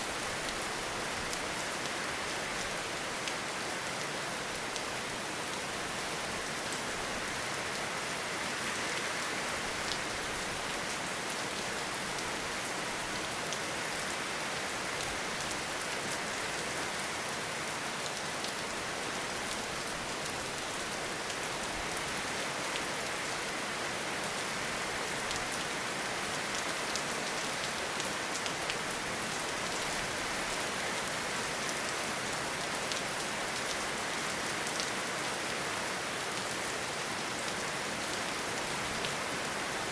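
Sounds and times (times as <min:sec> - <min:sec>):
steady rain in forest: 0:00.0 - 0:39.9.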